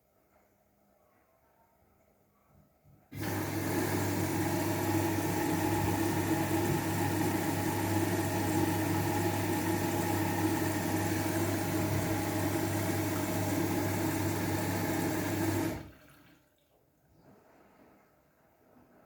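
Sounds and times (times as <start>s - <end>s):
washing machine humming: 3.1s - 16.7s.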